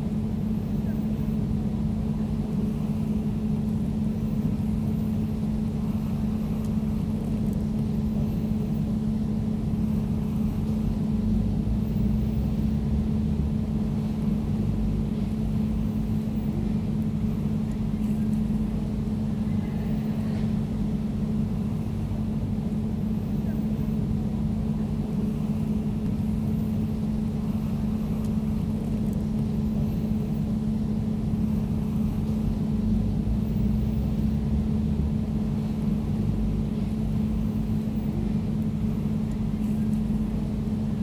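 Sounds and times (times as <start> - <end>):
air conditioner humming: 16.5 - 41.0.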